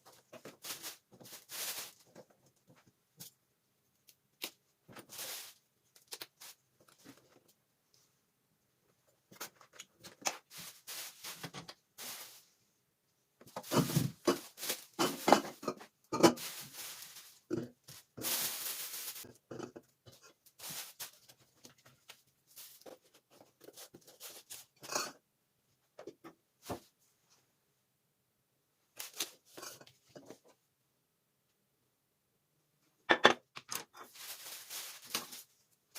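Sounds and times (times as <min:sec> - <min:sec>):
paper or plastic rustling: 0:00.3 - 0:02.4, 0:04.9 - 0:07.3, 0:09.4 - 0:12.5, 0:13.5 - 0:15.7, 0:16.3 - 0:19.4, 0:20.5 - 0:24.8, 0:29.0 - 0:30.3, 0:33.9 - 0:35.6
household items clicking and knocking: 0:13.4 - 0:24.1.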